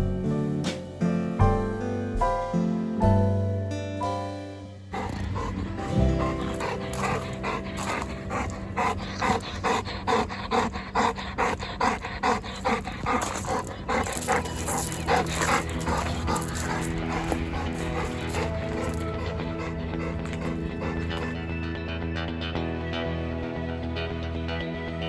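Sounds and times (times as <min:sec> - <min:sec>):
background music: 0:00.0 - 0:25.0
dog panting rapidly: 0:04.9 - 0:21.6.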